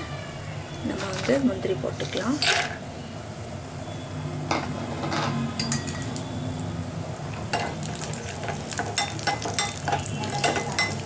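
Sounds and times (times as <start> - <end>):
nuts sizzling in hot ghee: 7.4 - 11.0
spoon scraping a pan: 8.4 - 11.0.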